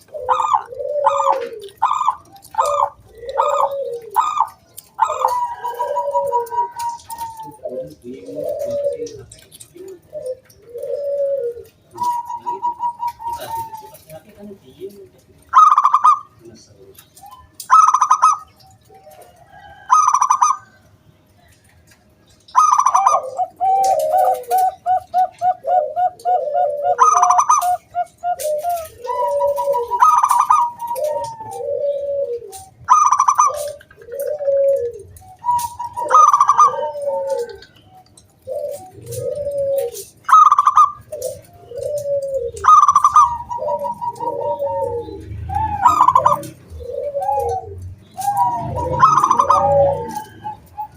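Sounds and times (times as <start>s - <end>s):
low rounded coo notes: 0.0s - 17.4s, 22.6s - 50.9s
dove calling: 0.0s - 50.9s.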